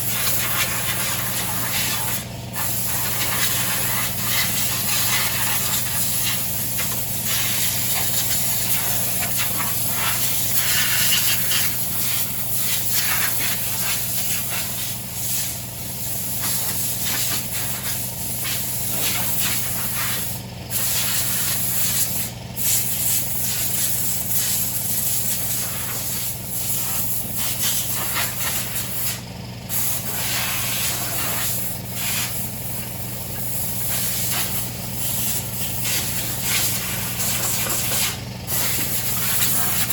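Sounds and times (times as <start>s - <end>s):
low motor hum: 14.9s - 39.9s.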